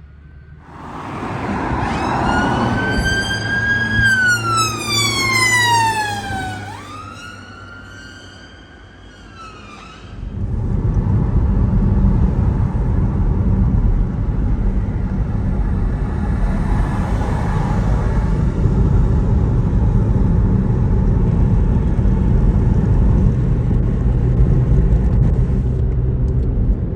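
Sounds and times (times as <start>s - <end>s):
emergency siren wailing: 0.7s - 10.2s, 16.0s - 18.7s
loud low rumble: 10.1s - 26.9s.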